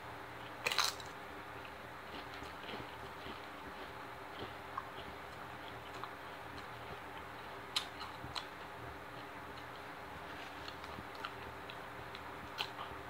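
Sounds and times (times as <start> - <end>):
chewing with wet clicks: 0.4 - 9.9, 10.6 - 13.0.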